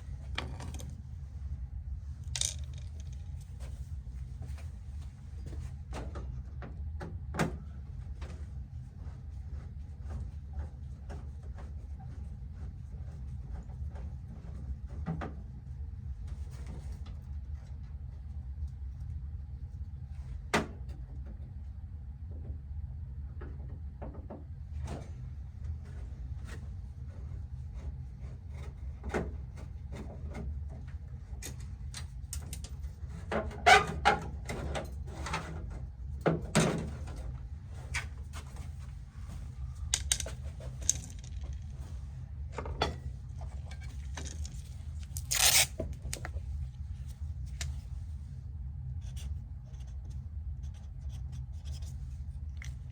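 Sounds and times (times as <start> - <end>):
steady low hum: 0.0 - 52.9
knocks and clatter of handled objects: 0.2 - 1.0, 2.2 - 3.8, 38.3 - 46.6.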